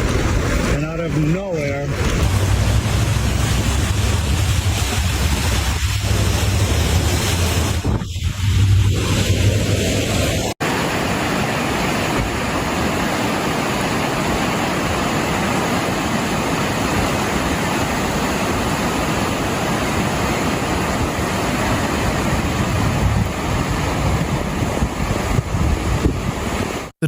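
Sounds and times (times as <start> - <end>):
water rushing: 0.0 - 27.0.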